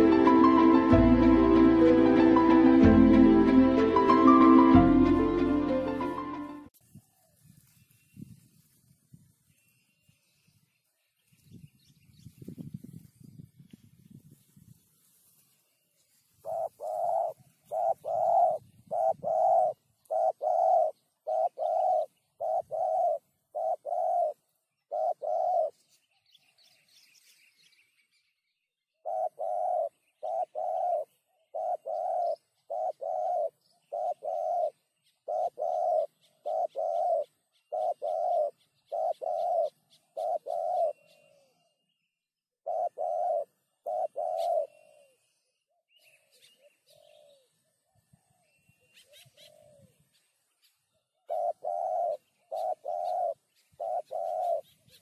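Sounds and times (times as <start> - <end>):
small birds chirping: 6.9 - 55.0
dove cooing: 16.4 - 25.8, 29.0 - 41.7, 42.6 - 45.3, 46.3 - 47.5, 48.9 - 50.2, 51.2 - 55.0.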